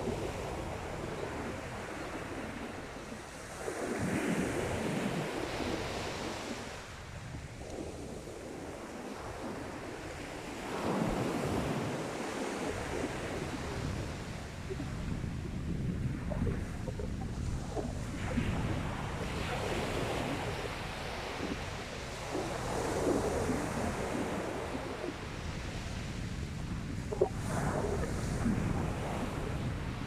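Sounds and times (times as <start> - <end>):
sea waves breaking on beach: 0.0 - 30.0.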